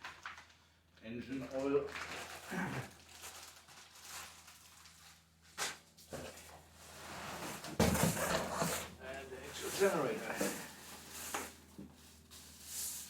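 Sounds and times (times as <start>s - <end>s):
cardboard rustling and scraping: 5.5s - 13.0s.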